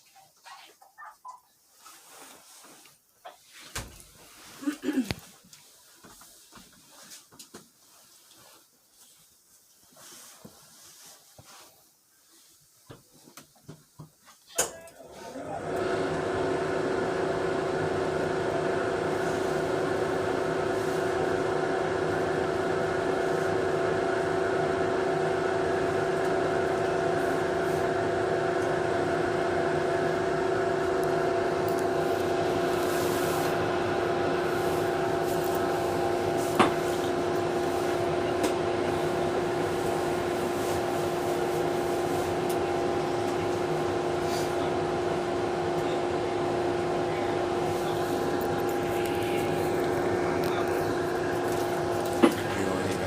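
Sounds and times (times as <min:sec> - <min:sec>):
subway car ventilation hum: 0:15.3 - 0:53.0.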